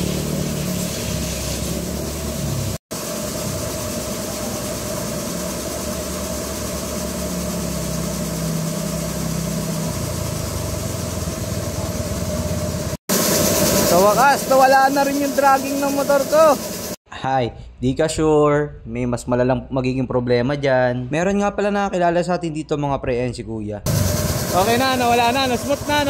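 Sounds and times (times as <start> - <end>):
small motorcycle engine running: 0.0 - 17.0, 23.9 - 26.0.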